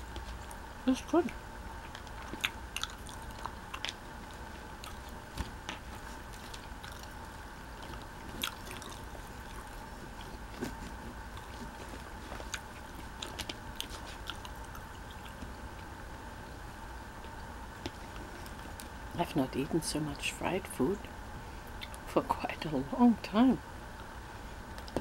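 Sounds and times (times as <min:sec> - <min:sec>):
faint background hum: 0:00.0 - 0:25.0
close-up chewing: 0:01.7 - 0:15.9, 0:17.2 - 0:19.0.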